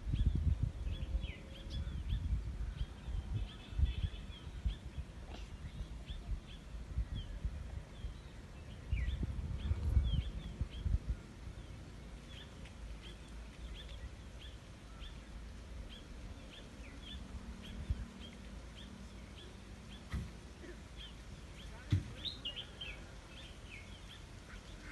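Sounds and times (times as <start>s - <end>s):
low rumbling thumps: 8.8s - 11.2s.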